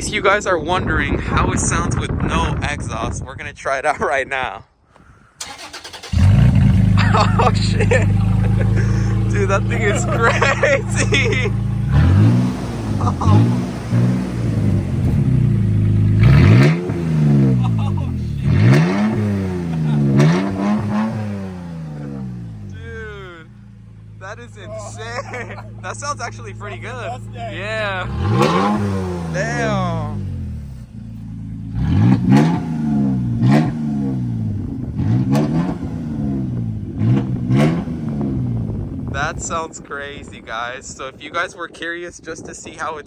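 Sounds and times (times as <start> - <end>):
engine revving and rough idle: 5.4 - 39.5.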